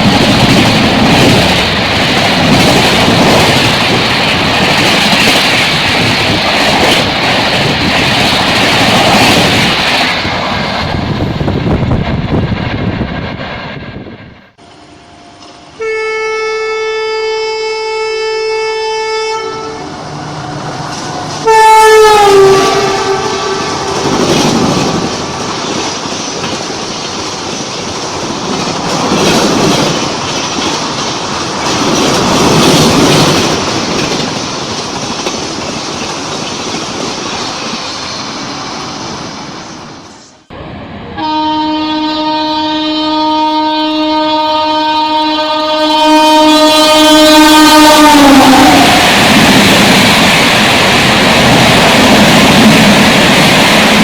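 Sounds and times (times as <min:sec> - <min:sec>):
train rushing past: 0:00.0 - 0:16.2, 0:18.1 - 0:54.0
train horn: 0:15.0 - 0:20.6, 0:21.4 - 0:24.2, 0:41.2 - 0:49.1.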